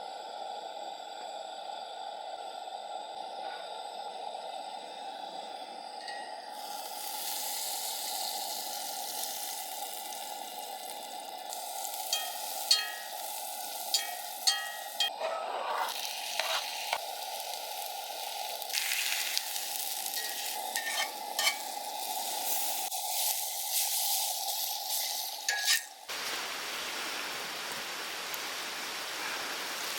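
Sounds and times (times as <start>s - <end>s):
food sizzling in a pan: 6.2s - 15.1s, 15.7s - 29.9s
utensil clinking and scraping pan: 13.9s - 15.2s, 20.1s - 21.8s, 24.9s - 26.0s.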